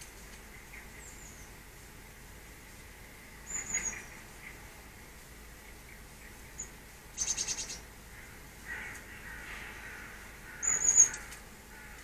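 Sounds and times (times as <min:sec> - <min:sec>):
small birds calling: 0:00.0 - 0:01.7, 0:02.6 - 0:12.0.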